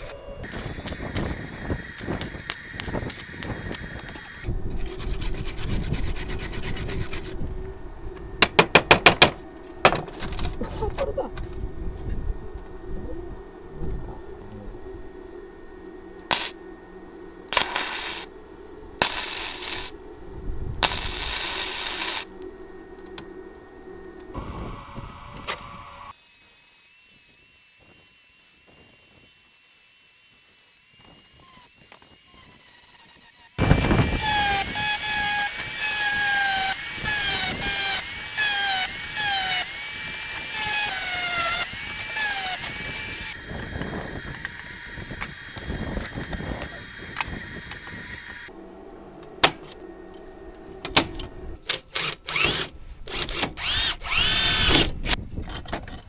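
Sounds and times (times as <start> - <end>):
hissing bursts: 0.0 - 4.5, 31.1 - 48.5
power tool cutting metal: 0.0 - 4.5, 24.4 - 48.5.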